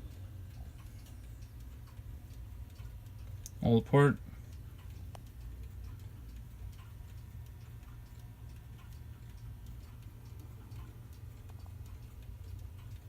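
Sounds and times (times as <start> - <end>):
clock ticking: 0.0 - 13.0.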